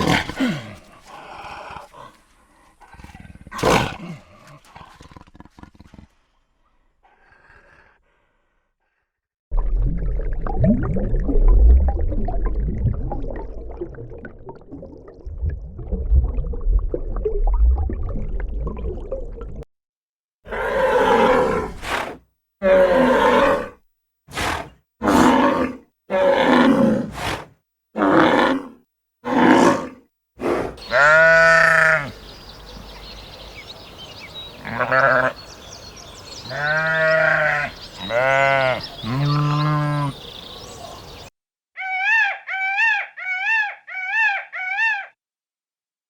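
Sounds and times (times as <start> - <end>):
animal grunting: 0.0 - 6.3, 20.5 - 32.2.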